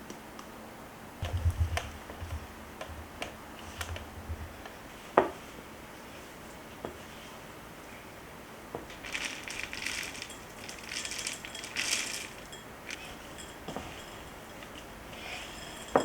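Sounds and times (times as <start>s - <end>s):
crisp crackling: 8.9s - 15.0s.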